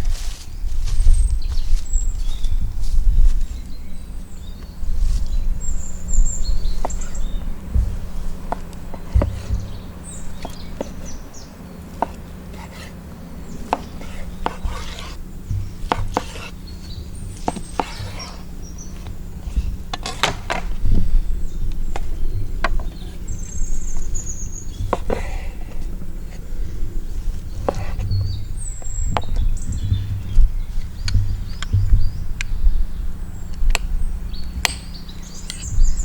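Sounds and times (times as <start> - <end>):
faint bird chirps: 0.5 - 19.8, 20.9 - 36.0
knife on wooden board: 12.0 - 13.0, 13.6 - 16.5, 17.4 - 18.5, 27.6 - 28.3.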